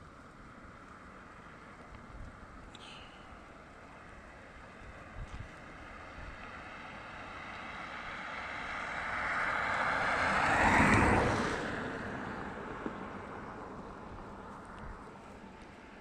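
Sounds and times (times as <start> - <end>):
motor vehicle passing by: 5.0 - 16.0.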